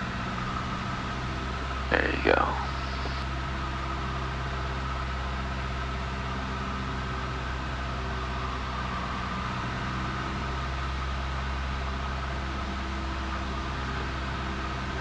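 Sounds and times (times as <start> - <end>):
light aircraft engine drone: 1.5 - 3.2.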